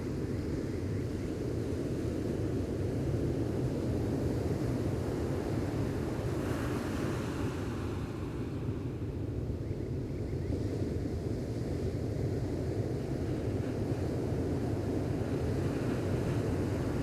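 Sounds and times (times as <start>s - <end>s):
wind rumble on microphone: 0.0s - 17.0s
ocean waves washing on beach: 5.0s - 9.5s.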